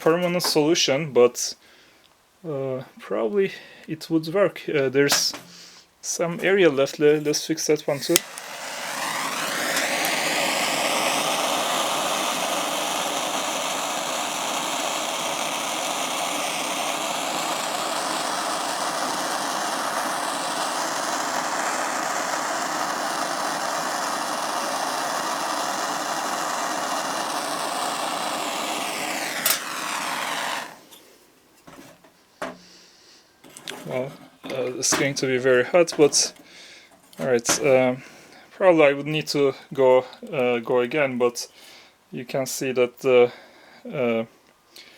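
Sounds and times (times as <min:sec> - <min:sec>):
torch flame hissing: 0:07.9 - 0:31.2, 0:32.4 - 0:38.4.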